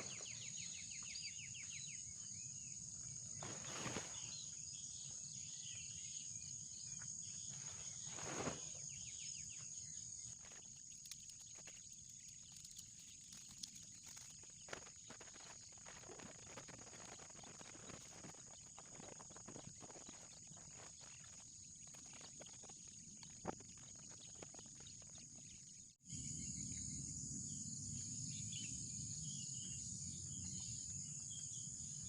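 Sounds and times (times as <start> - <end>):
birds chirping: 0.0 - 15.9
insects droning: 0.0 - 32.0.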